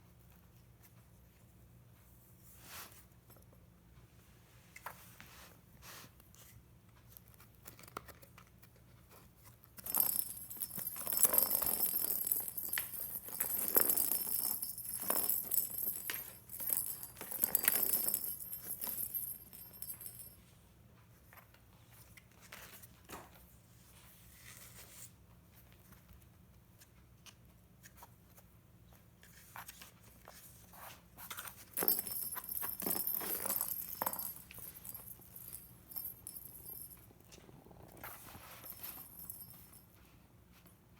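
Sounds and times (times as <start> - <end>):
cat toy jingling and rustling: 9.8 - 20.5, 31.4 - 40.6.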